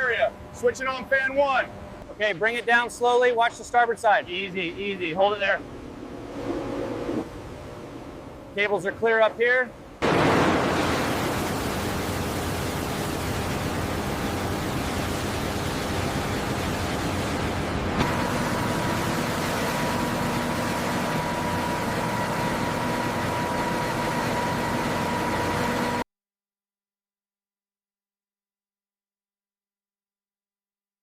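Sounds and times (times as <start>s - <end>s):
steady humming tones: 0.0s - 10.0s, 11.0s - 26.0s
rushing mechanical noise: 5.6s - 8.6s, 10.0s - 26.0s.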